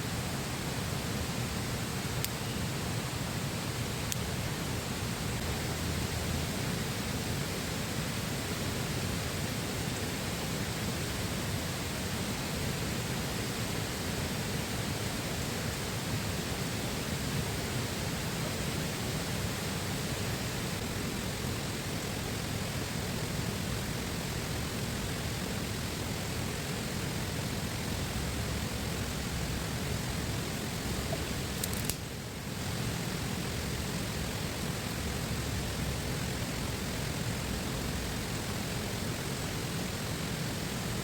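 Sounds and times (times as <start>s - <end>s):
faint click: 2.2s - 2.4s.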